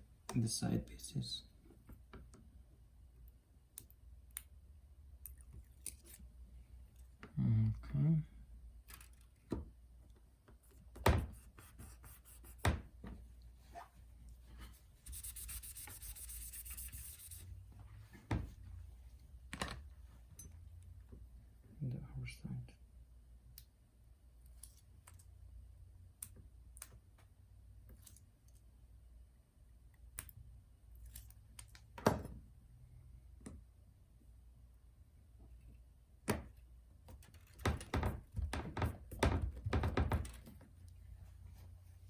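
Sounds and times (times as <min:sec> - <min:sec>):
small parts and tools clicking: 0:08.8 - 0:09.4.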